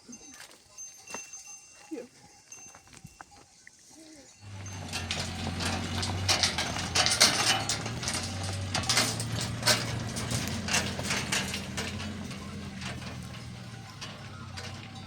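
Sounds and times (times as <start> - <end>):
clinks and knocks of hard objects: 4.4 - 15.0.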